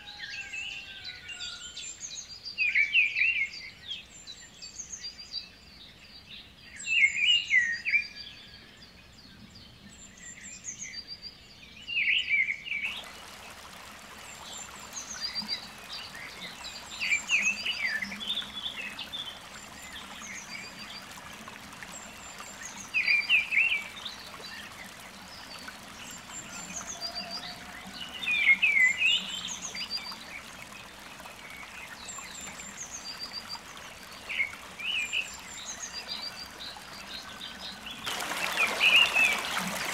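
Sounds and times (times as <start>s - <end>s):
birds chirping: 12.7s - 39.9s.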